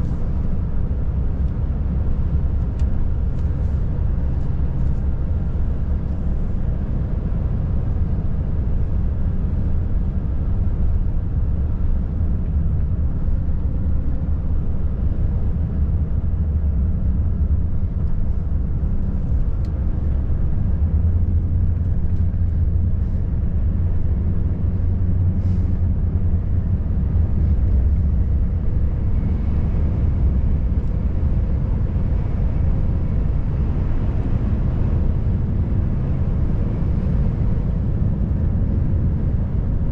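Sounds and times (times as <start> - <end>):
road noise: 0.0 - 39.9
truck diesel engine drone: 0.0 - 39.9.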